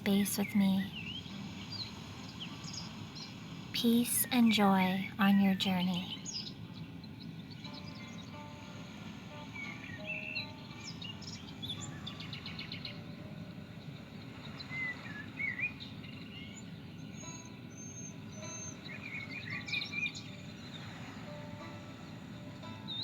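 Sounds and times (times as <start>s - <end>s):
low background rumble: 0.0s - 22.9s
birds chirping: 0.0s - 23.0s.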